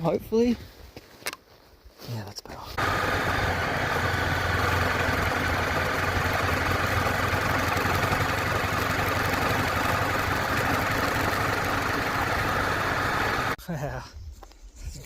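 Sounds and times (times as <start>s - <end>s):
small motorcycle engine running: 2.8s - 13.6s.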